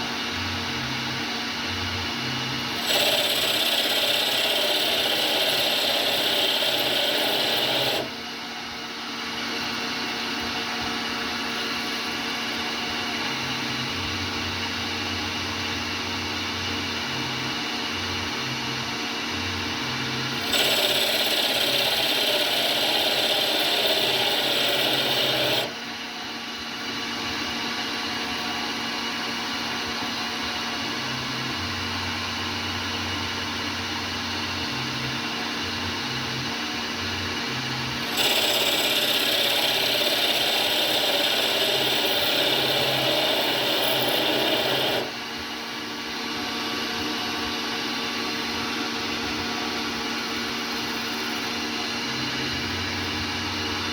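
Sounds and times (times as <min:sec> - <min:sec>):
lathe machine hum: 0:00.0 - 0:53.9.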